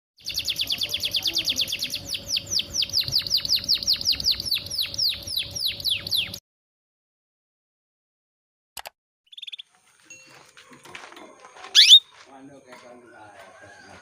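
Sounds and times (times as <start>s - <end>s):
canary chirping: 0.2s - 6.4s, 9.3s - 9.7s, 11.8s - 12.1s
canary falling whistled notes: 11.8s - 12.0s.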